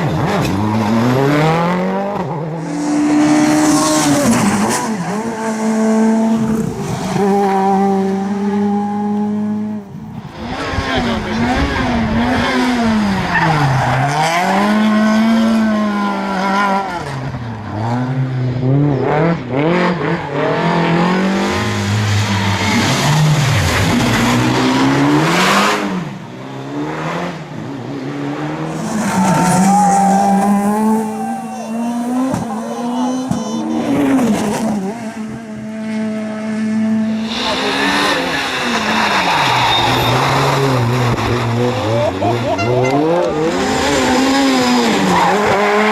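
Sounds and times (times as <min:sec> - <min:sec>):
rally car engines revving past: 0:00.0 - 0:45.9.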